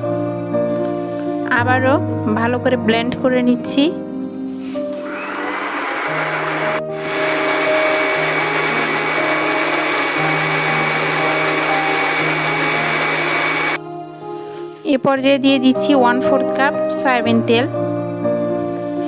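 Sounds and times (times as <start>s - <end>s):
electric blender running: 5.0s - 13.8s.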